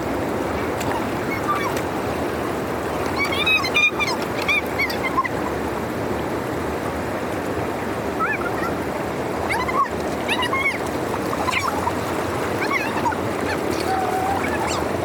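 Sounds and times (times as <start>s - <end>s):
water rushing through drainage: 0.0s - 15.0s
high animal calls: 9.5s - 15.0s.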